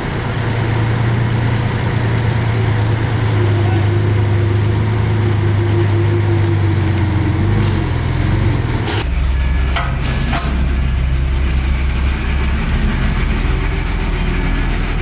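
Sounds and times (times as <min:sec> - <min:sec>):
diesel engine of heavy machinery: 0:00.0 - 0:15.0
metallic squeaks and clanks: 0:05.4 - 0:15.0.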